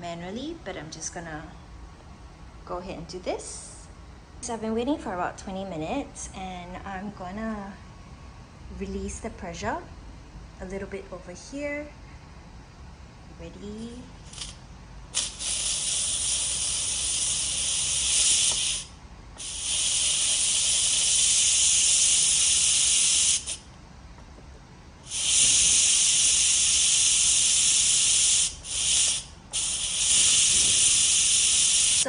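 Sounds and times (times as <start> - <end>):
pressure cooker venting steam: 14.3 - 23.6, 25.0 - 32.0.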